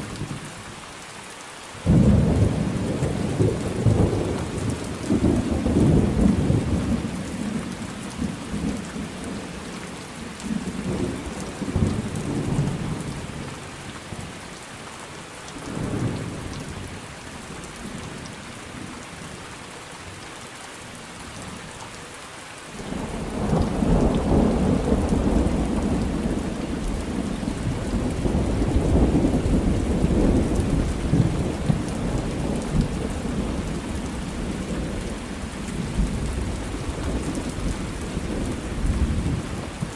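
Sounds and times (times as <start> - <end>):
rain hiss: 0.0 - 39.9
rolling thunder: 1.8 - 8.8, 22.9 - 39.9.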